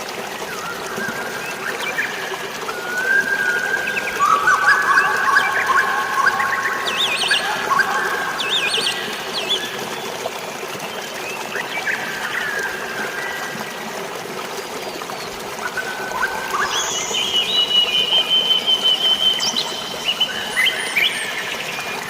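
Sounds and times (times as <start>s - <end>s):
flowing water: 0.0s - 22.0s
birds whistling and chirping: 2.7s - 9.7s, 15.8s - 21.9s.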